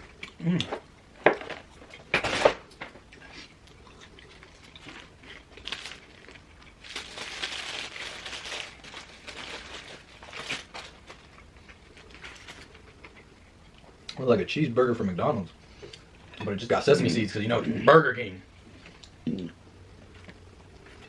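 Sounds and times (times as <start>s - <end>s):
paper wrapper crinkling: 4.3s - 13.1s.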